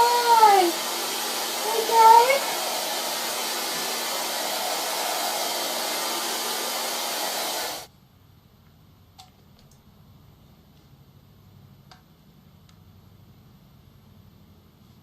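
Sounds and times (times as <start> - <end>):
hair dryer blowing: 0.0 - 7.9.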